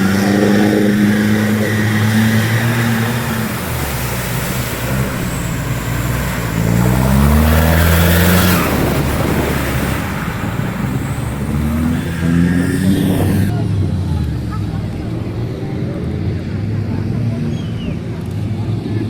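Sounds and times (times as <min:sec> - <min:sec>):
engine revving: 0:00.0 - 0:19.0.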